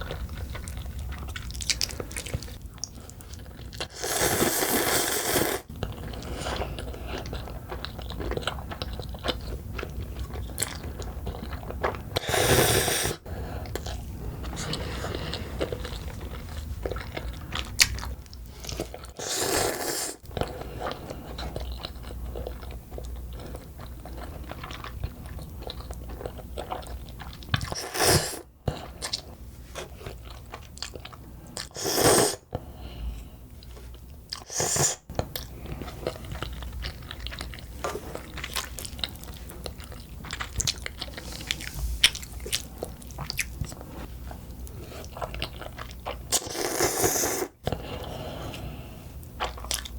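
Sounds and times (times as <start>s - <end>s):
wet chewing: 0.0s - 31.7s, 33.6s - 48.2s, 49.2s - 49.9s
noodle slurps: 3.9s - 5.7s, 12.2s - 13.2s, 19.2s - 20.2s, 31.7s - 32.4s, 46.4s - 47.6s.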